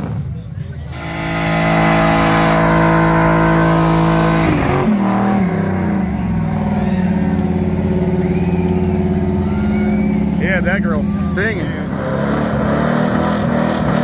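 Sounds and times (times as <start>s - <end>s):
car engine revving high: 0.9s - 14.0s.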